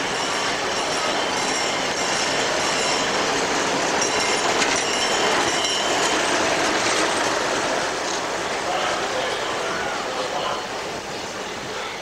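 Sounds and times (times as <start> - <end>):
high wheel squeal: 0.0 - 6.2
train wheels on rails: 0.0 - 12.0.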